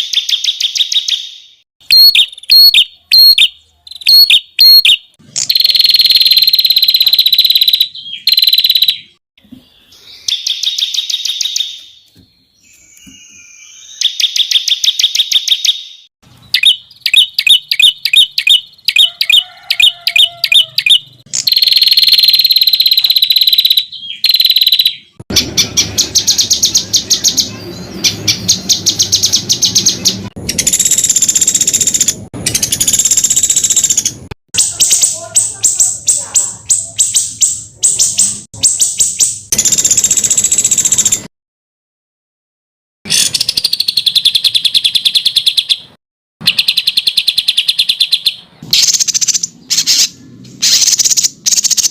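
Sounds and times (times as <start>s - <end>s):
rapid sharp repeated bird notes: 0.0s - 9.2s, 10.1s - 12.1s, 13.9s - 41.2s, 43.1s - 51.9s.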